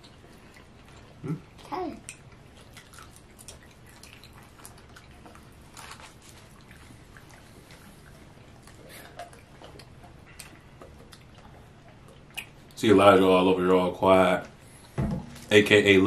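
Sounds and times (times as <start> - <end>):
quiet chewing: 0.0 - 12.8
low room hum: 0.0 - 16.0
wet mouth clicks: 8.7 - 12.8.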